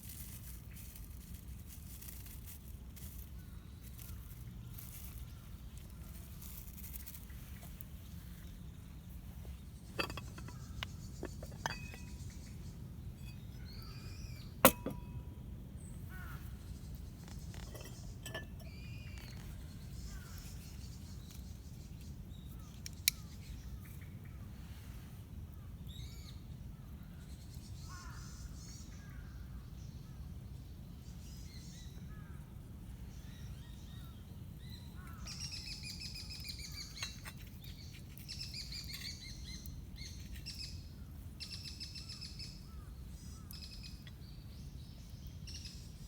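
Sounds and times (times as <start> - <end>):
birds chirping: 7.1 - 24.0.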